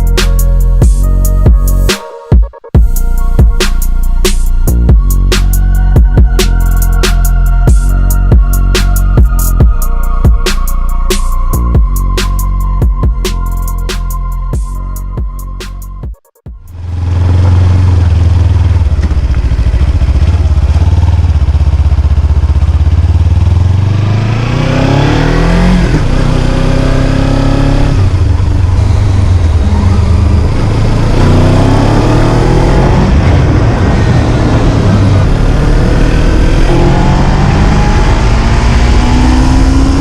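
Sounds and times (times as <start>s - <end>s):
motorcycle engine revving: 16.5s - 40.0s.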